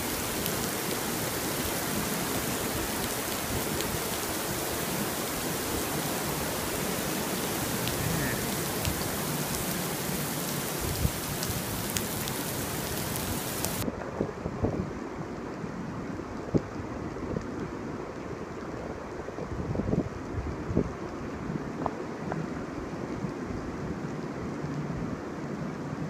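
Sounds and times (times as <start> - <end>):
raindrops ticking nearby: 0.0 - 13.8
heavy rain on pavement: 0.0 - 13.9, 14.9 - 26.0.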